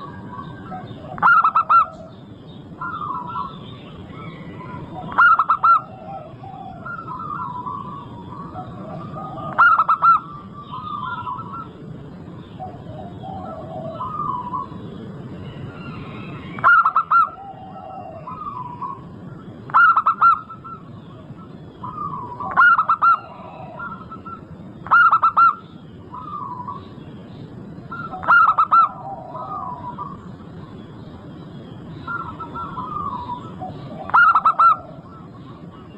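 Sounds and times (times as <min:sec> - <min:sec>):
dove rapid staccato cooing: 0:00.0 - 0:02.2, 0:04.2 - 0:11.8, 0:12.6 - 0:14.7, 0:16.5 - 0:19.1, 0:19.7 - 0:21.2, 0:21.8 - 0:26.8, 0:27.9 - 0:30.2, 0:32.0 - 0:35.9
soft dove cooing: 0:02.8 - 0:11.7, 0:12.6 - 0:14.7, 0:16.5 - 0:19.0, 0:21.8 - 0:25.6, 0:27.9 - 0:30.2, 0:32.1 - 0:35.9.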